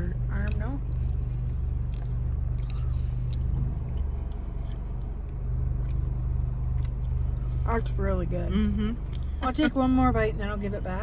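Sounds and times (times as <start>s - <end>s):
car engine idling: 0.0s - 11.0s
person chewing pastry: 0.5s - 7.6s, 8.6s - 9.4s.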